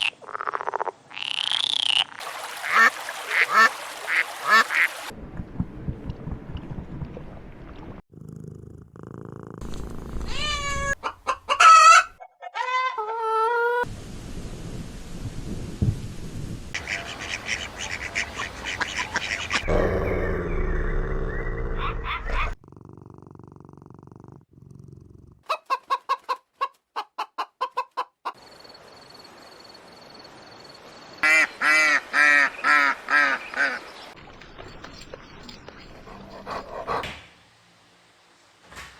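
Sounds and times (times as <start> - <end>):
cat purring: 8.1 - 11.0, 19.6 - 25.4
cat calls: 10.0 - 11.1
chickens clucking: 10.8 - 13.5, 25.5 - 28.4.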